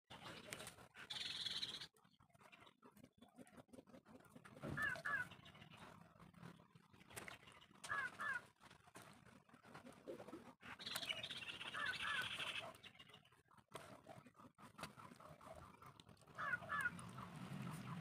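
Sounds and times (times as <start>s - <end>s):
harsh chattering bird call: 10.8s - 13.1s.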